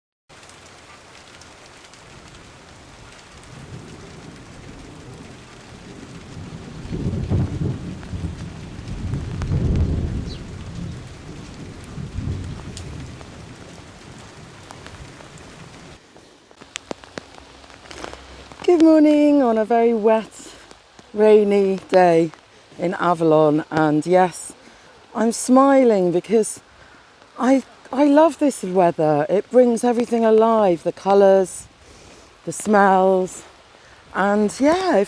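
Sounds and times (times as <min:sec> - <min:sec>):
rain hissing: 0:00.3 - 0:35.0
rolling thunder rumbles: 0:02.0 - 0:16.0.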